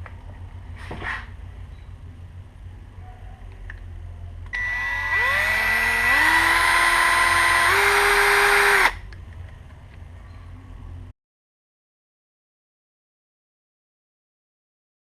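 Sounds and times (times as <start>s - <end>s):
small electric motor whining: 4.6s - 9.0s.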